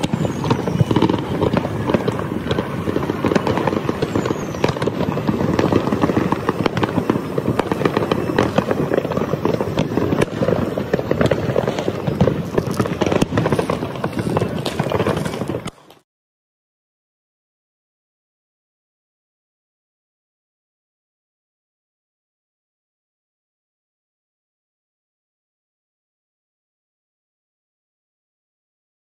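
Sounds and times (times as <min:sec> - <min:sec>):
fireworks crackling and popping: 0:00.0 - 0:16.0
high firework whistle: 0:00.0 - 0:16.0.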